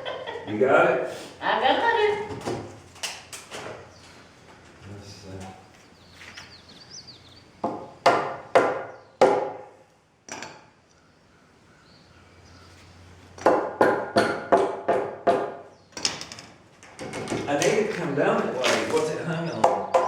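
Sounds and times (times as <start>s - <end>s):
hammer striking wood: 7.6s - 9.7s, 13.4s - 15.7s, 19.6s - 20.0s.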